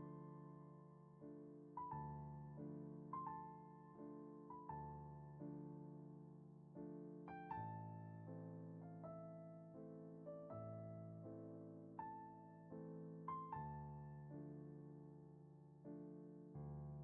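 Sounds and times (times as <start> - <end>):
slow solo piano music: 0.0 - 17.0.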